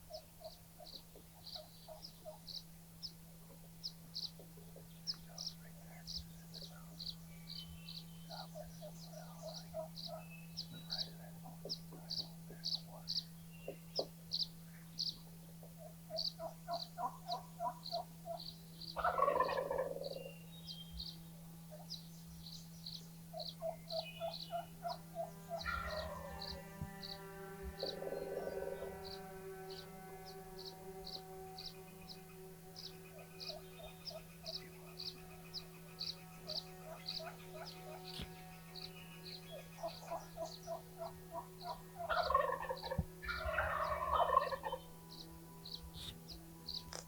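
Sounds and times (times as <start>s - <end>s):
low steady hum: 0.0s - 47.0s
turkey gobbling: 15.6s - 18.4s, 19.0s - 20.2s, 23.3s - 26.6s, 36.4s - 38.3s, 39.5s - 44.8s.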